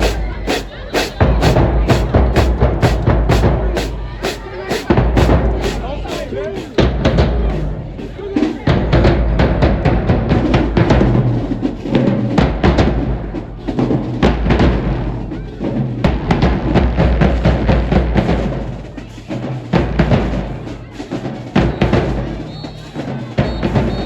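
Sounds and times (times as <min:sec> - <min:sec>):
quick sharp drum hits: 0:00.0 - 0:07.4
heavy bass drums: 0:00.0 - 0:15.0.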